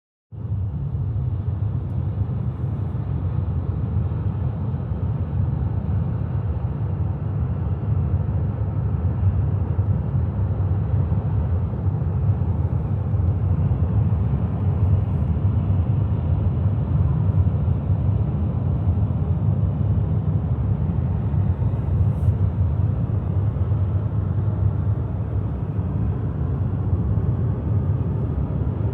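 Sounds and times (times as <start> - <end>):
car tyres and engine rumbling: 8.8 - 28.9.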